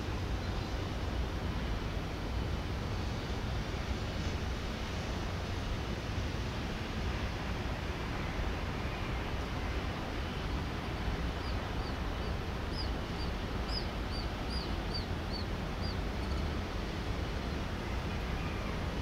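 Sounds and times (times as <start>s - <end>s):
steady rushing noise: 0.0s - 19.0s
bird chirping: 11.4s - 16.5s.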